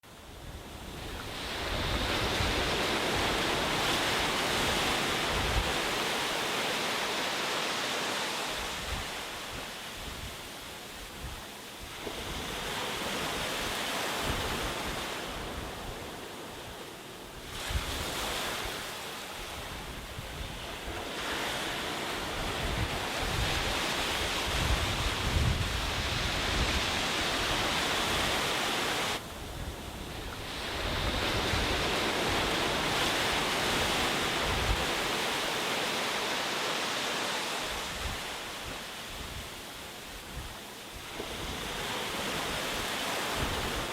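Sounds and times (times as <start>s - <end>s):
sea surf breaking on beach: 0.0s - 43.9s
wind rumbling on microphone: 0.1s - 7.2s, 8.4s - 36.0s, 37.5s - 43.9s.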